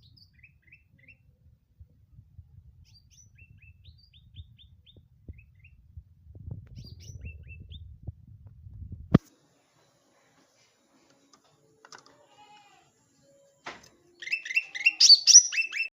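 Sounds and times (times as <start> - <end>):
songbird chirping: 0.0 - 1.4, 9.6 - 15.9
low rumbling handling noise: 4.1 - 9.2.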